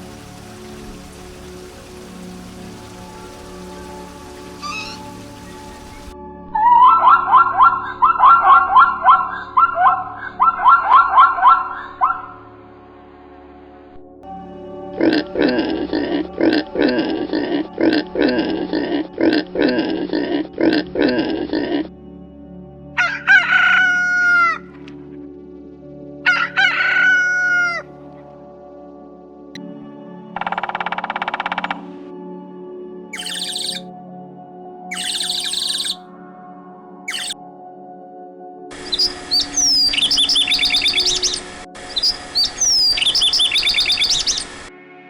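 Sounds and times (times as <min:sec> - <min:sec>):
songbird singing: 0:03.9 - 0:12.4, 0:33.2 - 0:33.9, 0:34.9 - 0:36.0, 0:37.1 - 0:37.4, 0:38.8 - 0:44.7
rooster crowing: 0:23.0 - 0:24.7, 0:26.2 - 0:27.9.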